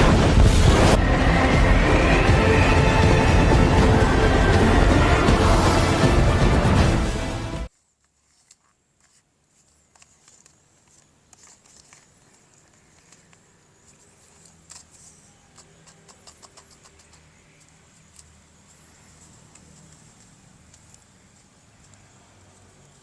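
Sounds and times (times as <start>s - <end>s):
packaging rustles: 7.7s - 17.2s
small plastic clicks: 8.3s - 22.7s.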